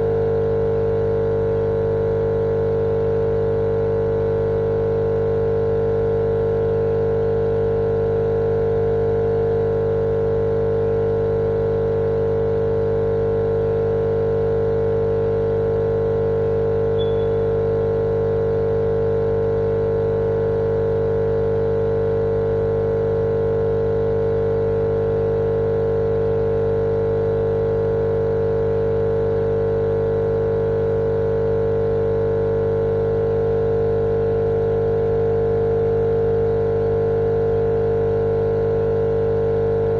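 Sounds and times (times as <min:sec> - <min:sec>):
machine hum: 0:16.8 - 0:17.8.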